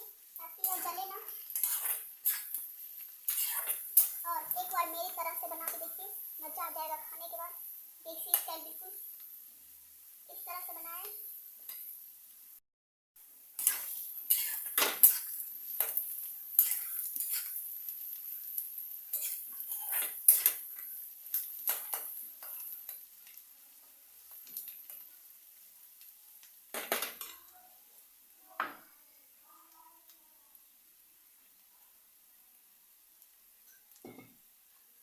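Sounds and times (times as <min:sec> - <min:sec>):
onions sizzling: 0:00.0 - 0:12.6, 0:13.2 - 0:35.0
metal spoon scraping a pan: 0:00.5 - 0:05.8, 0:13.6 - 0:23.4.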